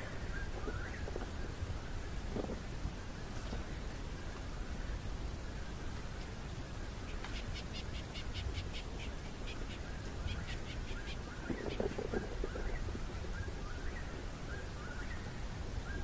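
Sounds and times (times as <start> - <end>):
lower bird calls: 0.0 - 1.6, 7.0 - 16.0.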